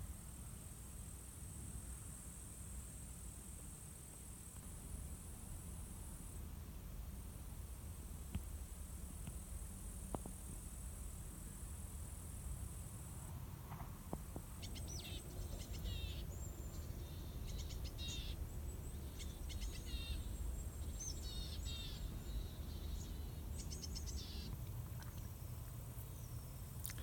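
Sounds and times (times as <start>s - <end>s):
low outdoor background noise: 0.0s - 27.0s
songbird chirping: 14.6s - 27.0s.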